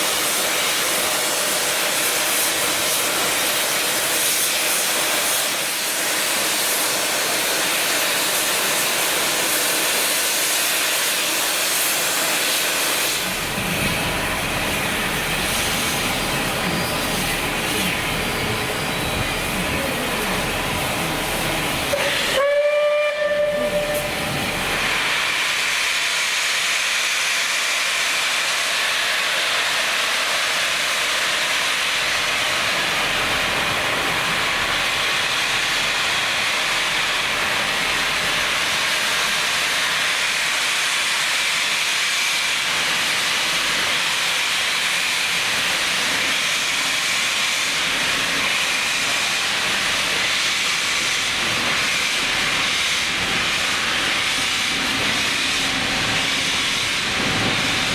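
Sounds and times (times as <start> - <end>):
steam hissing: 0.0 - 57.9
steam locomotive whistle: 21.9 - 24.4.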